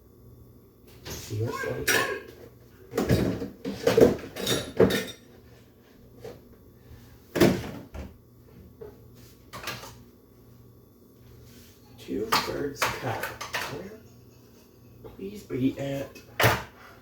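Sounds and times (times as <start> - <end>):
cupboard doors knocking and banging: 7.3 - 8.2.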